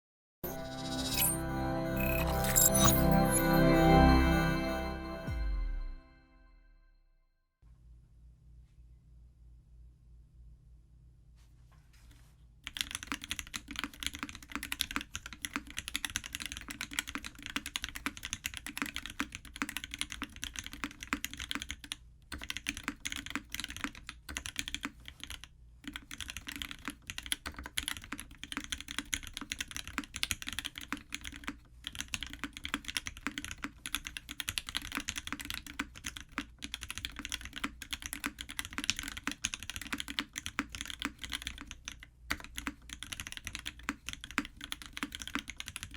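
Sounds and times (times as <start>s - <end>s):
mechanical keyboard typing: 12.7s - 45.9s.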